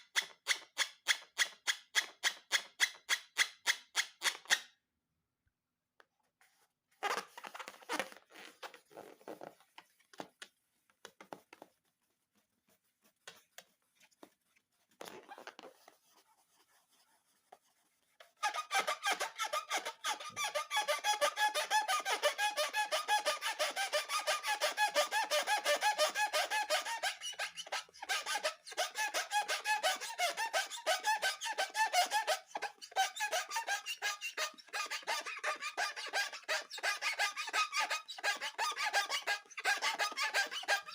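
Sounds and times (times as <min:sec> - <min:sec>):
rubber balloons squeaking: 0:07.0 - 0:09.8, 0:15.0 - 0:15.9, 0:18.4 - 0:40.9.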